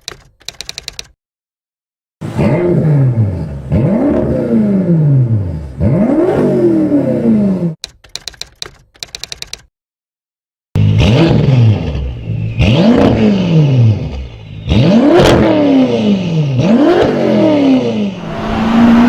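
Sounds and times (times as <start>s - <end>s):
car engine revving: 14.7s - 19.0s.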